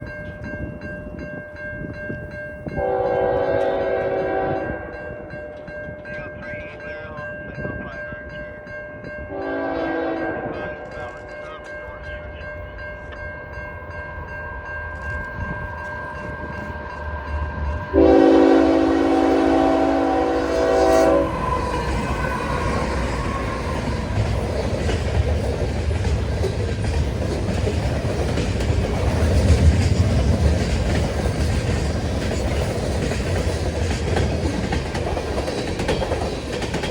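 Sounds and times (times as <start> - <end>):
train horn blast: 2.8 - 5.3, 9.3 - 11.0, 17.9 - 24.2
locomotive engine rumble: 10.4 - 36.9
wheels clattering over rails: 21.3 - 36.9.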